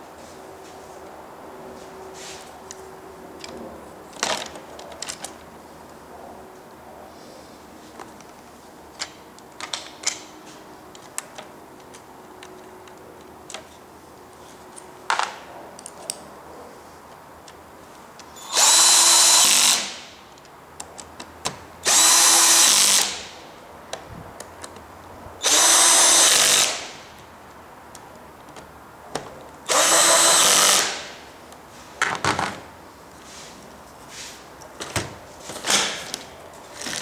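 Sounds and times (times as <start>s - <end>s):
power drill whirring: 18.4s - 20.0s, 21.8s - 23.2s, 25.4s - 27.0s, 29.7s - 31.1s.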